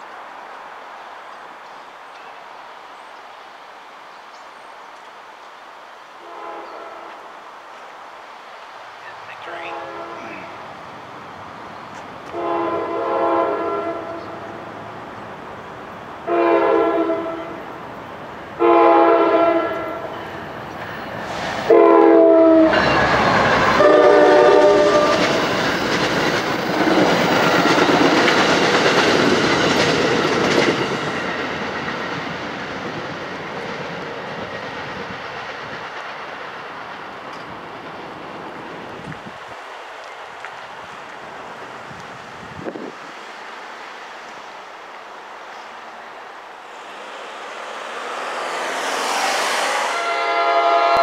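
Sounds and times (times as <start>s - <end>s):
train horn blasts: 6.2s - 7.2s, 9.4s - 10.6s, 12.3s - 14.6s, 16.3s - 17.7s, 18.6s - 20.1s, 21.7s - 25.4s, 47.6s - 51.0s
train wheels running over rails: 19.8s - 51.0s.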